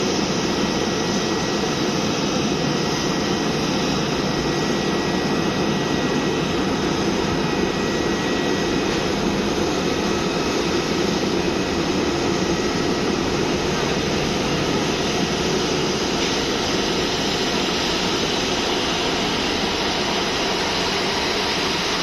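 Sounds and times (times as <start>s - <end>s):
jet engines rushing: 0.0s - 22.0s.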